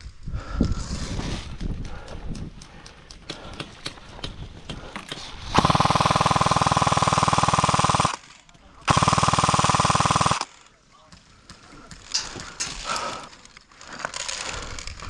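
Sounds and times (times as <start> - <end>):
electric toy gun firing bursts: 5.0 - 10.7.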